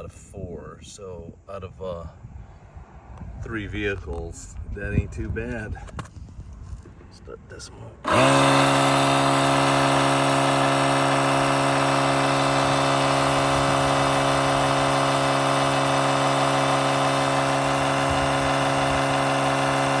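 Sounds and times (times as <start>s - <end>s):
air compressor motor hum: 8.0s - 20.0s.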